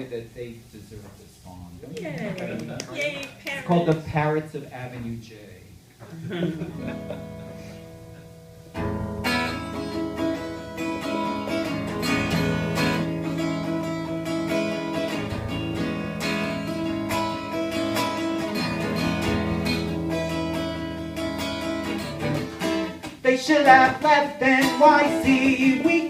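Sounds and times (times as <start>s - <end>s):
acoustic guitar strumming: 6.5s - 26.0s.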